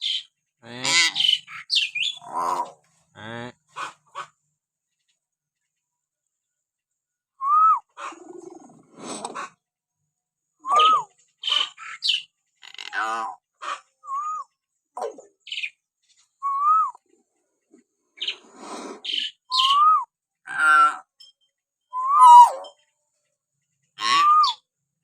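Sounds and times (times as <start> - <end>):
bird rasping calls: 0.0 - 2.8, 10.8 - 13.8, 18.2 - 19.8, 24.0 - 24.6
myna bird whistling calls: 1.0 - 2.3, 10.6 - 12.3, 18.2 - 20.1, 21.9 - 22.8, 24.0 - 24.7.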